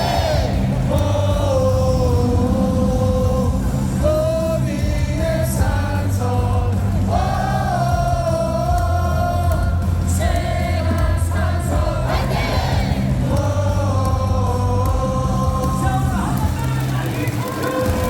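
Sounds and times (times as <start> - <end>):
amplified music: 0.0 - 18.0
stadium crowd singing in unison: 0.0 - 18.0.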